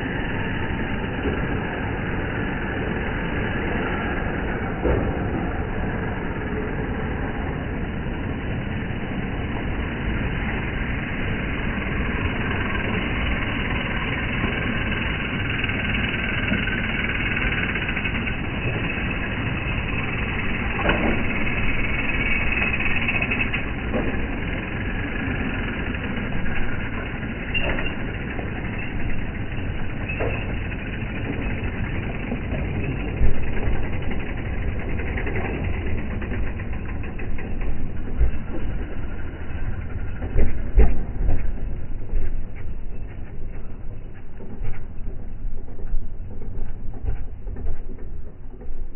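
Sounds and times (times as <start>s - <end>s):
train rumbling: 0.0s - 48.9s.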